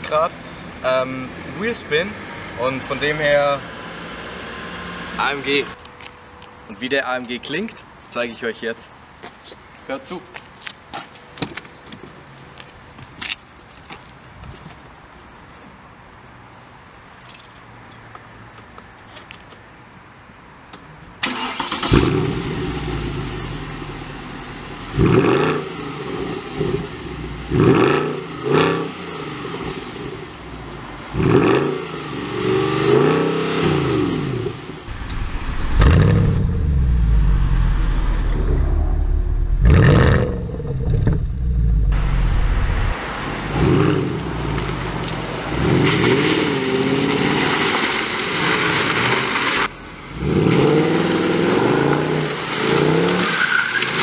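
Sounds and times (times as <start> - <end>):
car engine revving: 31.1 - 47.2.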